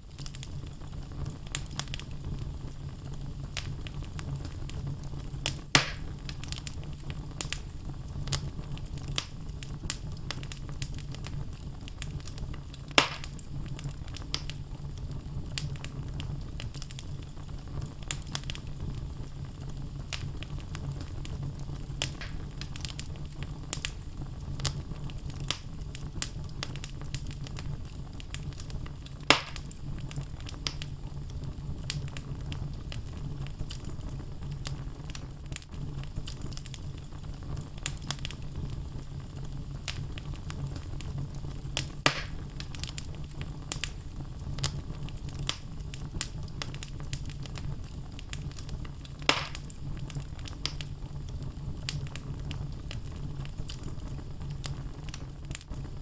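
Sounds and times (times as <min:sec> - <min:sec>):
logs crackling in fire: 0:00.0 - 0:56.0
low rumble of flames: 0:00.0 - 0:56.0
sharp loud fire pops: 0:05.8 - 0:06.1, 0:12.9 - 0:13.4, 0:22.1 - 0:22.5, 0:29.3 - 0:29.7, 0:42.0 - 0:42.5, 0:49.2 - 0:49.7.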